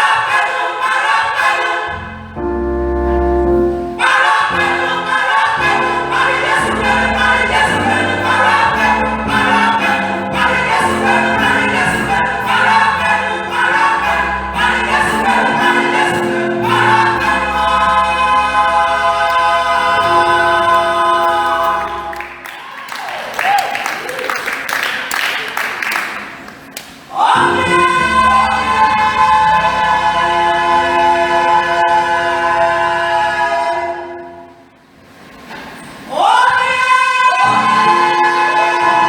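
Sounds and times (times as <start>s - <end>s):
church choir singing a carol: 0.0s - 22.8s, 27.1s - 34.8s, 36.1s - 39.0s
sustained low instrumental notes: 1.9s - 22.5s.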